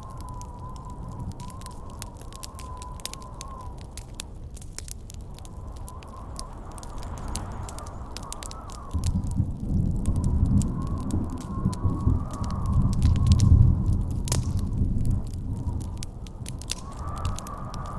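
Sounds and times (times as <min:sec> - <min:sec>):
campfire crackling and popping: 0:00.0 - 0:17.9
howling wind whistle: 0:00.0 - 0:17.9.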